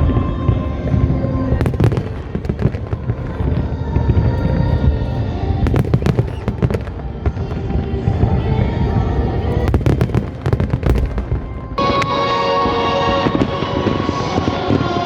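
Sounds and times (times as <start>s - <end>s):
festival music: 0.0s - 15.0s
firework crackles: 0.0s - 15.0s
firework booms: 9.0s - 12.2s.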